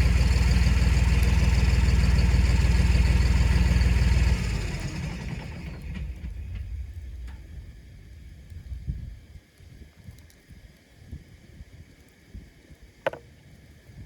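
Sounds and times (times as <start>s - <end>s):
tractor diesel engine running: 0.0s - 8.4s.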